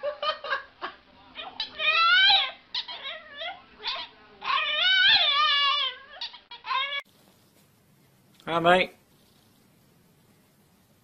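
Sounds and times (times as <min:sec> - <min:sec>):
puppy howling: 0:01.4 - 0:07.0
puppy yips and whimpers: 0:01.4 - 0:07.0.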